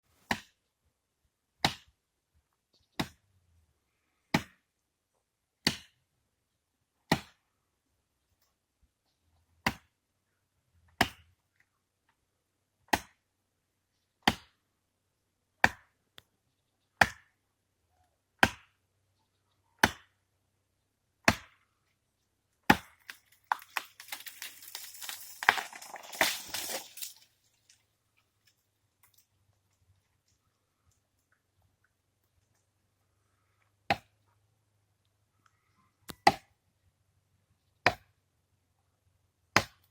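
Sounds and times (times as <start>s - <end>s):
axe chopping into tree: 0.3s - 0.5s, 1.6s - 1.9s, 3.0s - 3.2s, 4.3s - 4.6s, 5.6s - 6.0s, 7.1s - 7.4s, 9.6s - 9.9s, 11.0s - 11.3s, 12.9s - 13.2s, 14.2s - 14.6s, 15.6s - 16.0s, 17.0s - 17.3s, 18.4s - 18.8s, 19.8s - 20.2s, 21.2s - 21.6s, 22.7s - 23.6s, 33.9s - 34.1s, 36.2s - 36.5s, 37.8s - 38.1s, 39.6s - 39.9s
tree cracking and crashing: 22.8s - 27.8s.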